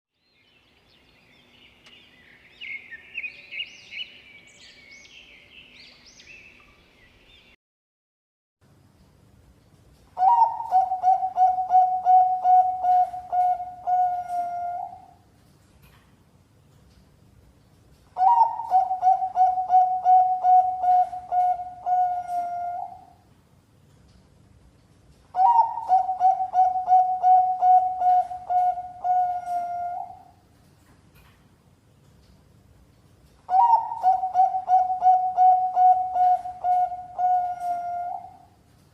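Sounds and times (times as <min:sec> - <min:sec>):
bird chirps and twittering: 0:00.2 - 0:07.6
dove cooing: 0:10.2 - 0:15.2, 0:18.2 - 0:23.2, 0:25.4 - 0:30.4, 0:33.5 - 0:38.6.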